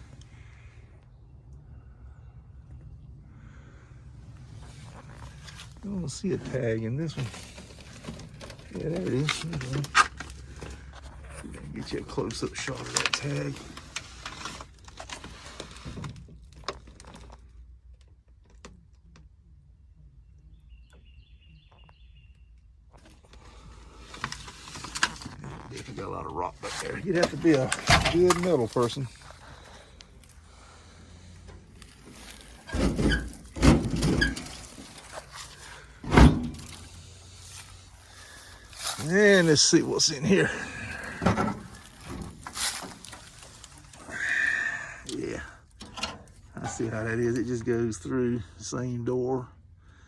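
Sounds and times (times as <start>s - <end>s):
low background hum: 0.0s - 50.0s
handling clicks and rustles: 4.4s - 19.4s, 22.8s - 44.4s, 45.0s - 48.1s
small bird chirping: 20.2s - 22.6s
short squeaks: 31.7s - 39.4s
metal clunks on truck body: 32.7s - 34.8s, 36.0s - 37.0s.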